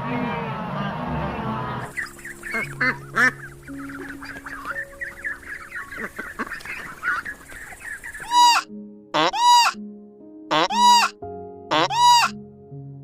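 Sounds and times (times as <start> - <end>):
flock of birds calling: 1.6 - 9.8, 10.5 - 12.3.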